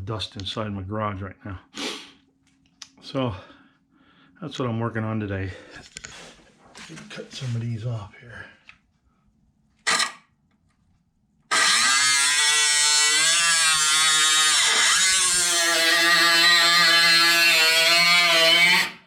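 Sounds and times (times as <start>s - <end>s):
power cutting tool cutting metal: 9.9s - 10.2s, 11.5s - 19.0s.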